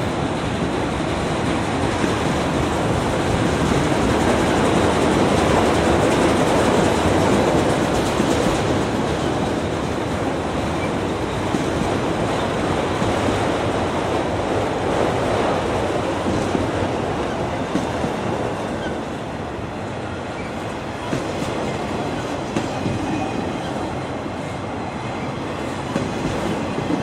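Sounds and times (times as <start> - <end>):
train wheels rumbling on track: 0.0 - 27.0
train wheels clicking: 0.2 - 19.0.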